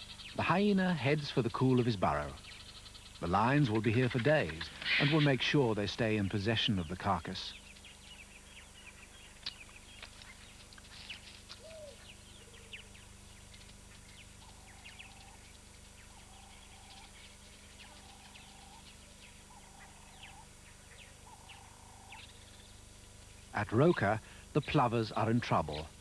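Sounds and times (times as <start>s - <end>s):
low even bird call: 4.5s - 5.8s, 11.6s - 13.0s.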